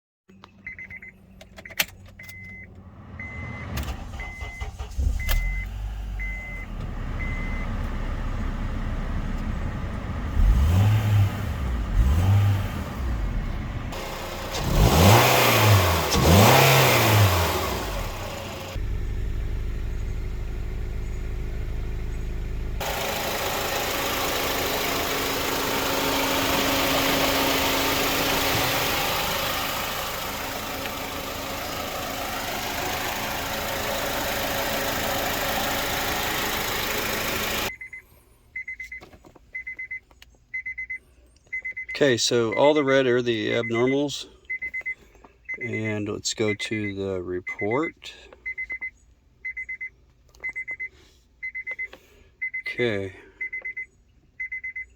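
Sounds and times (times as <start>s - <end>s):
car engine revving: 2.7s - 37.7s.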